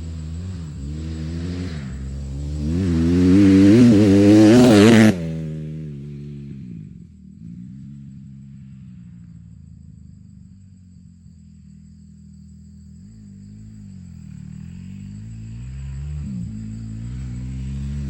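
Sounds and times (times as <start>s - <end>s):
dirt bike engine revving: 0.0s - 8.8s, 13.2s - 18.0s.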